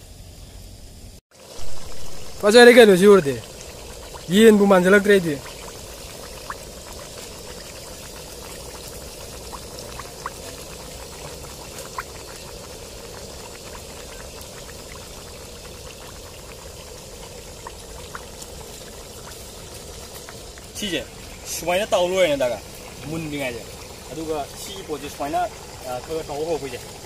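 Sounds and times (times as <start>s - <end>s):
chicken sizzling in hot oil: 0.8s - 27.0s
oil popping and spitting: 1.6s - 27.0s.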